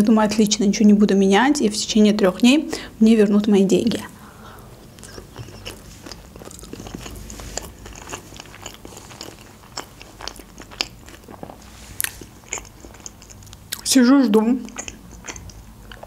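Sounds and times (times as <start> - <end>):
close chewing with wet clicks: 4.8 - 16.0.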